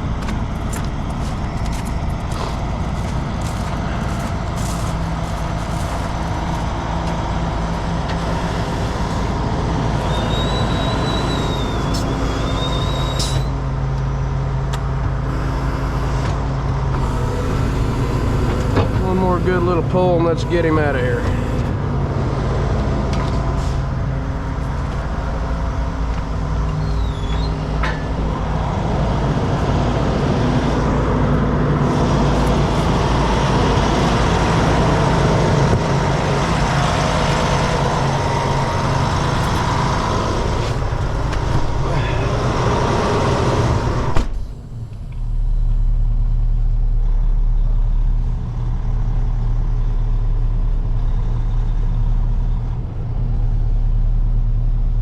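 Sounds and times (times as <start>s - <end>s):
low engine idle: 0.0s - 28.6s
diesel truck engines under load: 0.0s - 55.0s.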